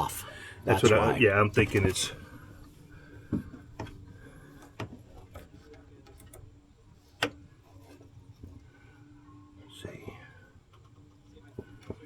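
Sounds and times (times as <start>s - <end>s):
faint steady hum: 0.0s - 12.0s
light sharp clicks and taps: 0.8s - 8.6s, 10.7s - 12.0s.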